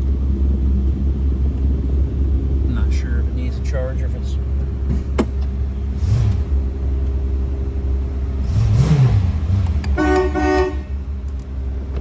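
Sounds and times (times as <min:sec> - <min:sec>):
engine idling: 0:00.0 - 0:12.0
car horn beeps: 0:09.9 - 0:11.0.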